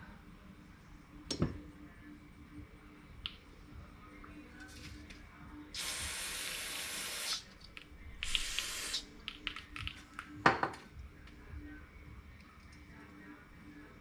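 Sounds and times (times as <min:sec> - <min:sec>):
pressurized spray hissing: 0:05.8 - 0:07.4, 0:08.2 - 0:09.0.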